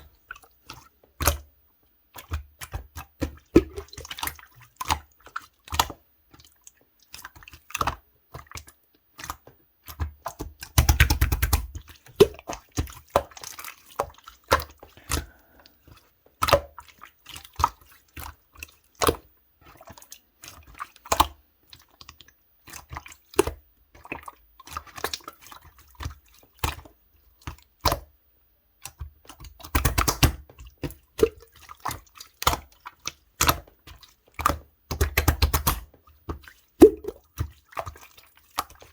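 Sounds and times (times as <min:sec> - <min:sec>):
slime squelching: 0:07.0 - 0:26.1, 0:36.4 - 0:38.9
slime clicking and popping: 0:10.8 - 0:11.6, 0:29.7 - 0:30.4, 0:36.8 - 0:37.2.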